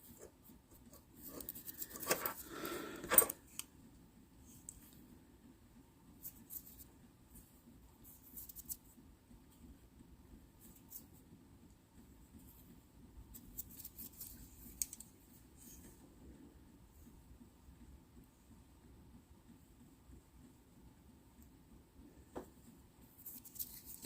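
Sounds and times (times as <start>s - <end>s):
low room hum: 0.0s - 24.0s
clicks of small objects handled: 14.1s - 15.1s.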